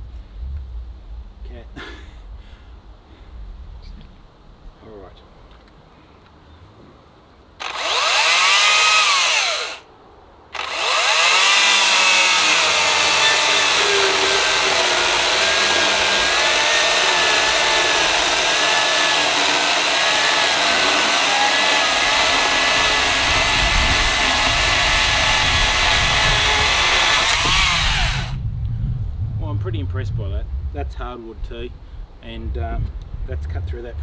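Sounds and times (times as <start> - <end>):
chainsaw cutting wood: 7.6 - 9.8, 10.5 - 28.4.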